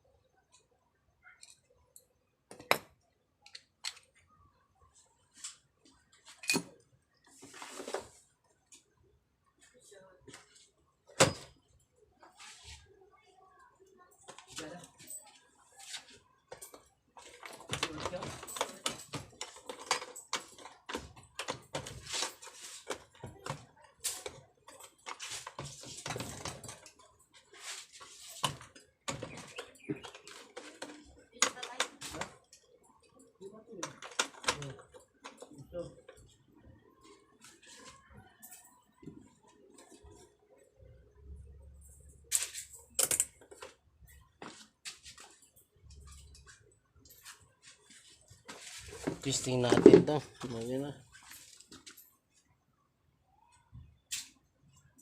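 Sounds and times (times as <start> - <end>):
tools and parts clicking: 1.4 - 4.3, 6.2 - 6.9, 16.5 - 36.3, 41.8 - 44.2
metal tools clinking: 6.2 - 6.8, 16.5 - 23.2.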